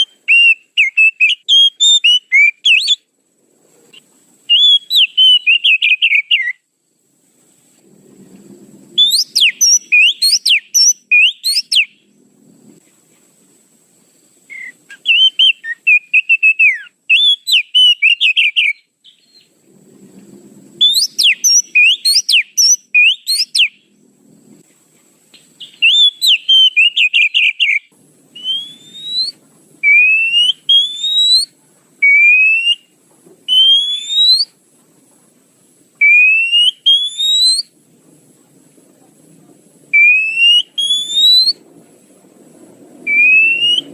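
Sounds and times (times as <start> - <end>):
bird chattering and whistling: 0.0 - 3.1, 3.9 - 6.6, 9.0 - 12.0, 14.5 - 19.5, 20.8 - 23.8, 25.4 - 34.6, 36.0 - 37.7, 39.9 - 41.6, 43.1 - 43.9.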